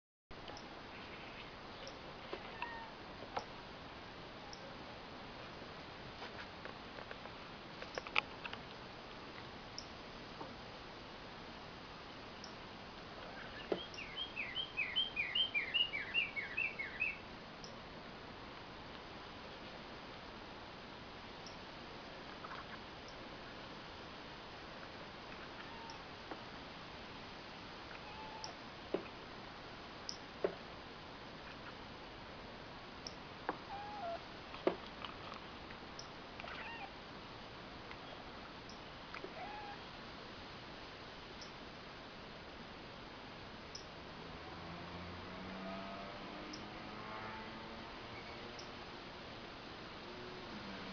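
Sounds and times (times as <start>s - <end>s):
cat meowing: 2.4s - 3.0s, 25.6s - 26.0s, 28.0s - 28.6s, 33.7s - 34.2s, 36.4s - 36.9s, 39.3s - 39.8s
songbird singing two-note phrases: 13.7s - 17.2s
cat chirping: 28.0s - 28.6s, 33.7s - 34.2s, 36.4s - 36.9s, 39.4s - 39.8s.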